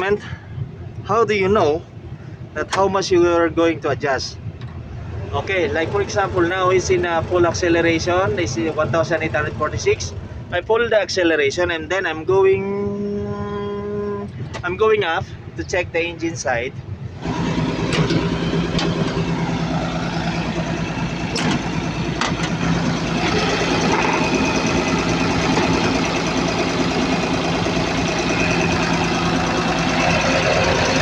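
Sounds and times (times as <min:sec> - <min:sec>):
excavator diesel engine running: 0:17.1 - 0:31.0
sharp clicks and knocks: 0:17.8 - 0:19.3, 0:21.2 - 0:26.3.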